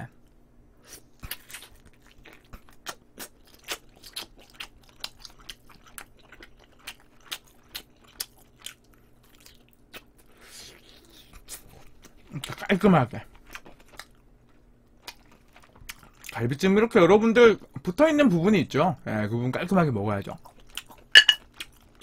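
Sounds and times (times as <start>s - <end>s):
close chewing and biting: 1.2s - 16.4s, 20.4s - 22.0s.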